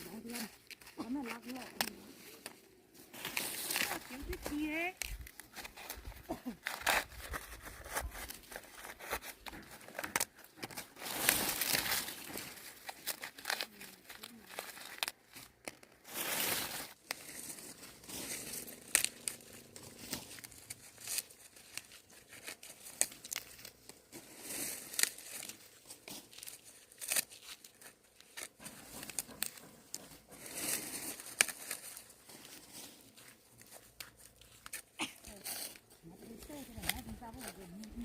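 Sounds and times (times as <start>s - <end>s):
dry corn leaves rustling: 0.0s - 38.0s
corn stalks snapping: 17.0s - 24.0s, 24.6s - 29.7s, 30.6s - 32.1s.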